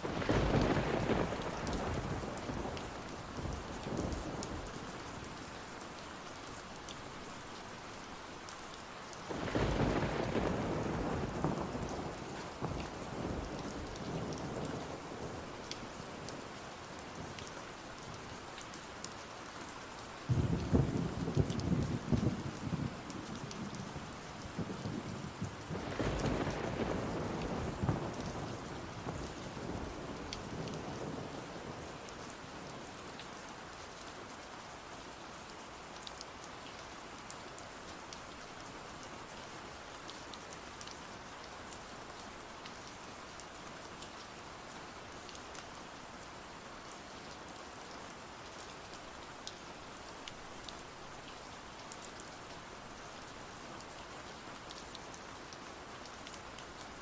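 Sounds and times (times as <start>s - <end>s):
steady rain falling: 0.0s - 57.0s
thunder rumble: 9.3s - 12.7s, 24.6s - 29.2s.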